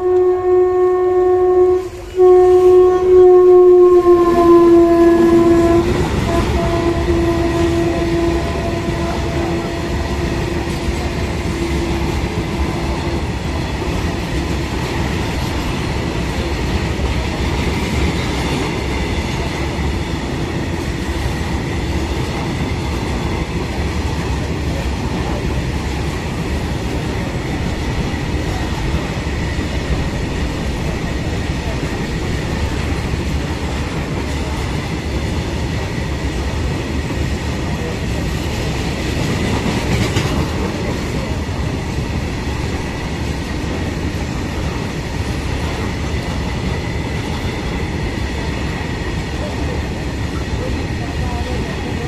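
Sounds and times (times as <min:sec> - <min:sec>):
locomotive horn: 0:00.0 - 0:13.4
train wheels rumbling on track: 0:00.0 - 0:52.0.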